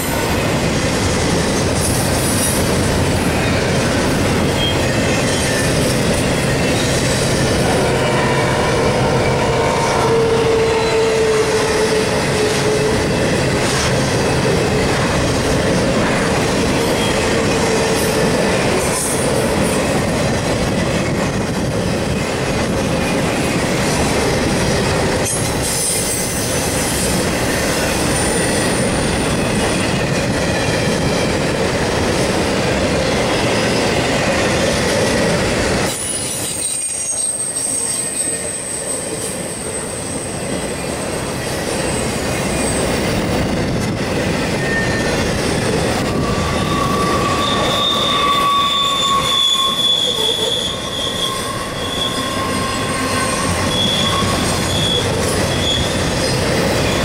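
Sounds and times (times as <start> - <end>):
freight train wheels rumbling: 0.0 - 57.0
wheel squeal: 44.6 - 45.1, 46.1 - 57.0.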